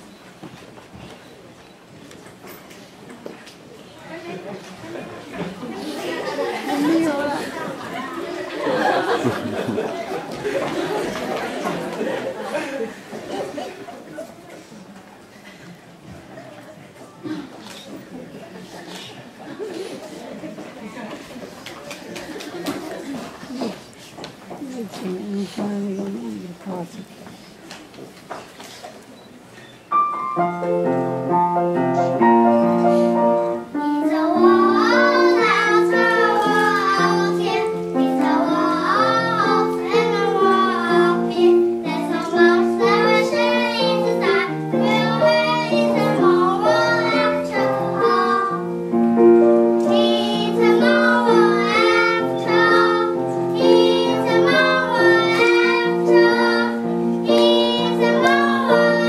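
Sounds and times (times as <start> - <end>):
piano accompaniment: 29.9 - 59.0
children singing: 33.4 - 48.6, 49.8 - 59.0.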